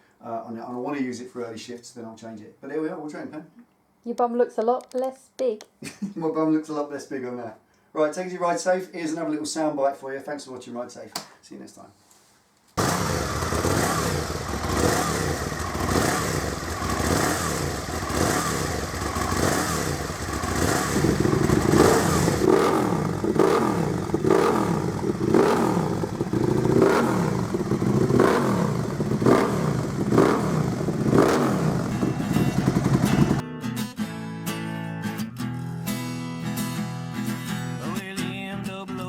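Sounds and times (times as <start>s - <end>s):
motorcycle engine revving: 12.8s - 33.4s.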